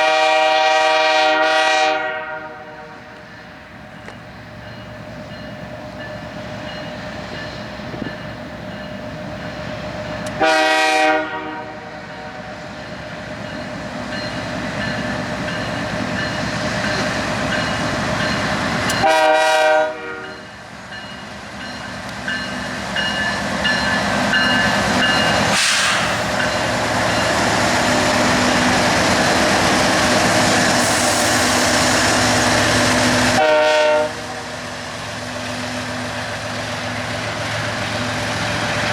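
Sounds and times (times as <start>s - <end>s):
locomotive air horn blasts: 0.0s - 3.2s, 10.3s - 12.4s, 19.0s - 20.4s, 33.2s - 34.6s
train rumble: 0.0s - 38.9s.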